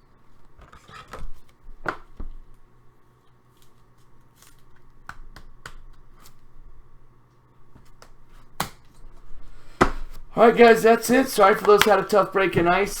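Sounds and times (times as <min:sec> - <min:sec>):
cards clicking and rustling: 0:03.5 - 0:06.4, 0:09.9 - 0:13.0.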